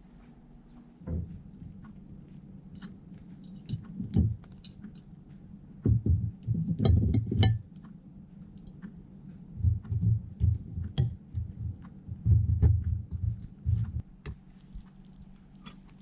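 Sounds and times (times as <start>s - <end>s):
dull knocks: 9.6s - 14.0s.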